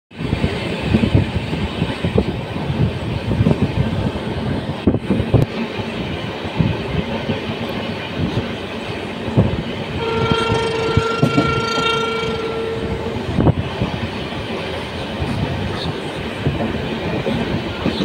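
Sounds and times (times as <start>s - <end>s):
train rumble: 0.1s - 18.0s
train horn: 10.0s - 13.3s.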